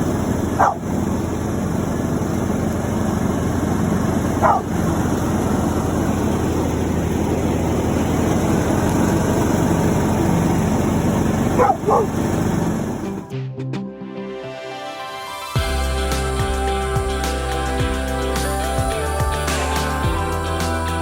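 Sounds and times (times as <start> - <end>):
lawn tractor engine running: 0.0 - 13.3
dog yelping: 0.6 - 0.8, 4.4 - 4.7, 11.5 - 12.2.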